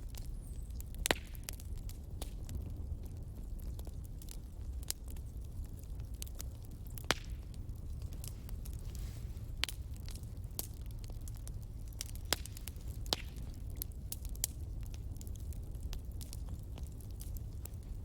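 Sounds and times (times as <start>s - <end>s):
burning logs rumbling: 0.0s - 18.0s
fire crackling: 0.0s - 18.0s
sharp pops and snaps: 7.0s - 7.5s, 9.6s - 17.8s.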